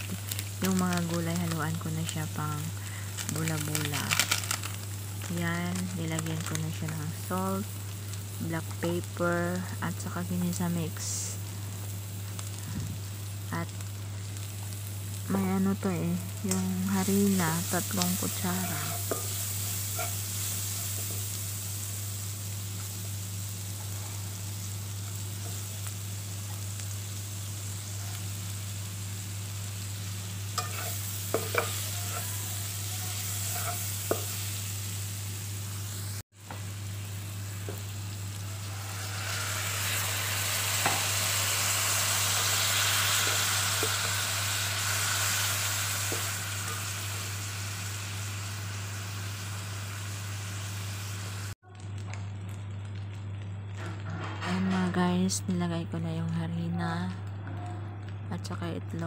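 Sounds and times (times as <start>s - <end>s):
oil sizzling in a wok: 0.0s - 54.5s.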